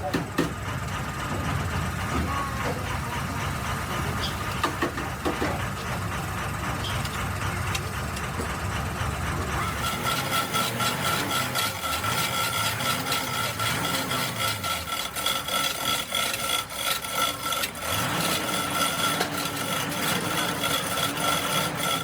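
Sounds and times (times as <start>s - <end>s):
knocks: 0.0s - 0.6s, 4.6s - 5.7s
rhythmic hand scraping strokes: 9.1s - 22.0s.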